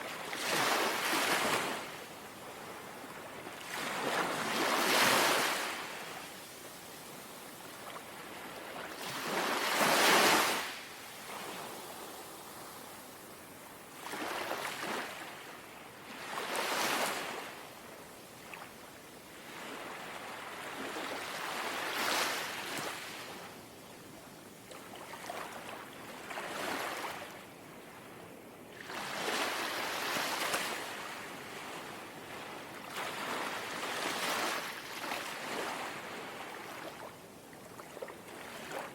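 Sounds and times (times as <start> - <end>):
gentle sea waves lapping: 24.2 - 38.9.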